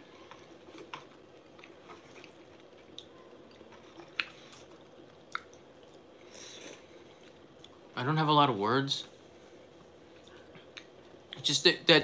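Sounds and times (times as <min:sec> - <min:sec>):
quiet chewing: 0:00.0 - 0:07.9, 0:09.8 - 0:11.4.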